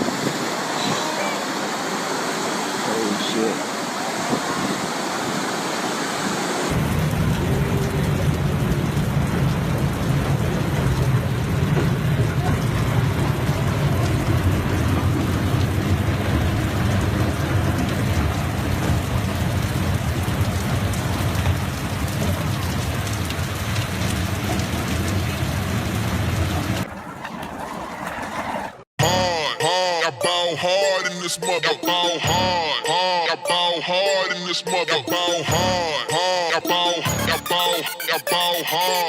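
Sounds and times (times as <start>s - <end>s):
heavy rain pouring: 0.0s - 28.8s.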